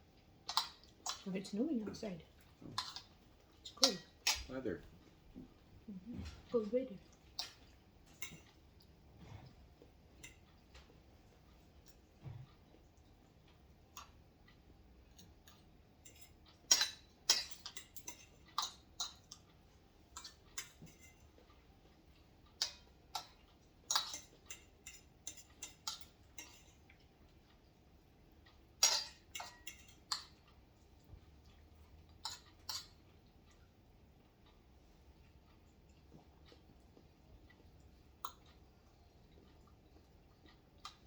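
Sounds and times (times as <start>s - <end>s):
utensils clinking on a plate: 7.4s - 8.6s, 16.0s - 19.4s, 20.2s - 21.5s, 22.6s - 27.0s, 28.8s - 30.4s, 32.2s - 33.0s.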